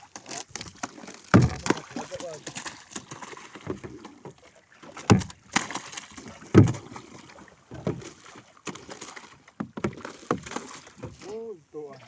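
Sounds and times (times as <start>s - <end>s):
heavy thuds on a boat: 1.3s - 2.3s, 5.0s - 7.1s, 7.7s - 8.2s, 9.6s - 11.3s.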